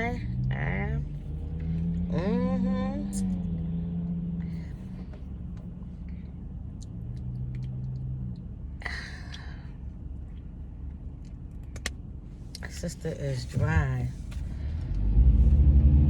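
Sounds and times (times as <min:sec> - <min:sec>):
car engine hum: 0:00.0 - 0:16.0
road rumble: 0:00.0 - 0:16.0
faint small clicks: 0:06.8 - 0:08.5.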